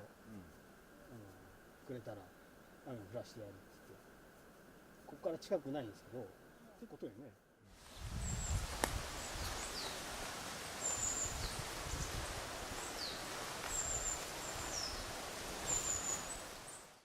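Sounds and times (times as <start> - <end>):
small birds chirping: 7.8 - 10.2, 10.8 - 17.0.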